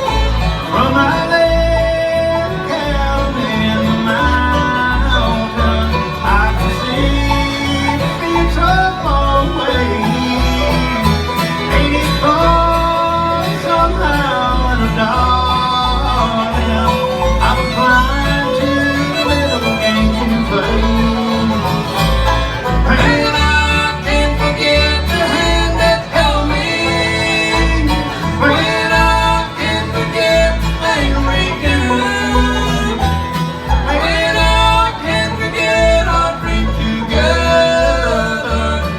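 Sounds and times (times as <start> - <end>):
acoustic guitar: 0.0 - 38.9
banjo: 0.0 - 38.9
fiddle melody: 0.0 - 38.9.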